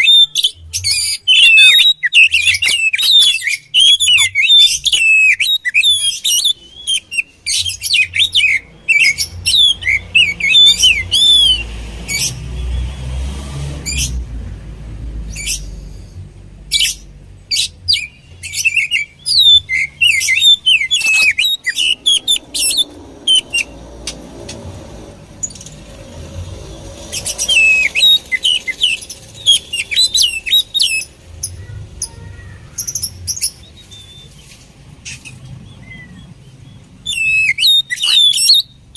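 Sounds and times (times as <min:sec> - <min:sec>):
bird singing whistles and chirps: 0:00.0 - 0:12.8, 0:16.7 - 0:23.8, 0:27.1 - 0:31.1, 0:32.8 - 0:34.6, 0:35.2 - 0:38.9.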